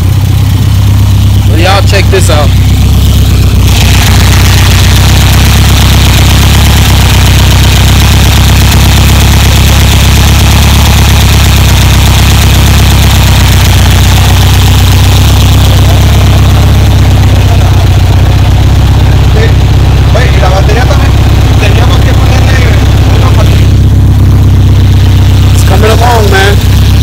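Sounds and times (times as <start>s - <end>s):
car engine idling loudly: 0.0s - 27.0s.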